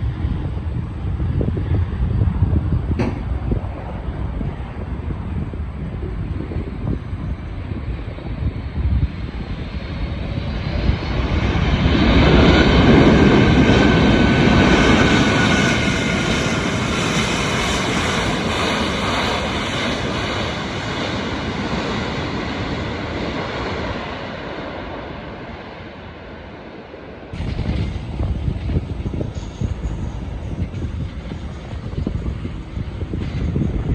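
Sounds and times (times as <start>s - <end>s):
airliner passing overhead: 0.0s - 33.9s.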